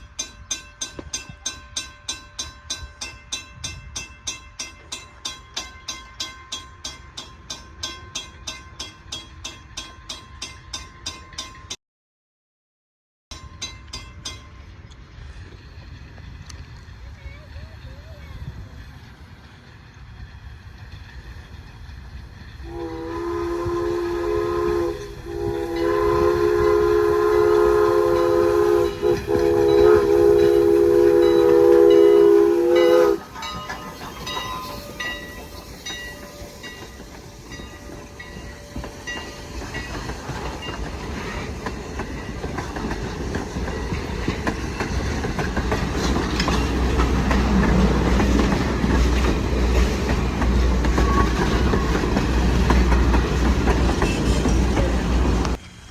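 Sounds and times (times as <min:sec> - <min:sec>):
train wheels clacking over rails: 0:13.4 - 0:55.9
train air horn chord: 0:22.6 - 0:33.4.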